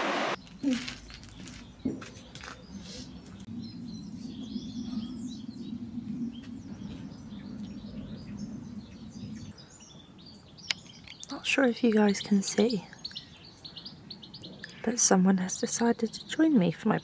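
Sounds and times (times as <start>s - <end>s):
songbirds chirping and singing: 0.4s - 17.0s
low steady hum: 3.2s - 9.6s.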